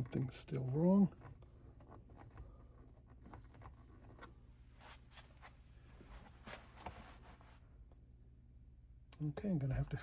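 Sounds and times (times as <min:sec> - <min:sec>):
faint clicks and taps: 0:00.0 - 0:04.4
low steady hum: 0:00.0 - 0:10.0.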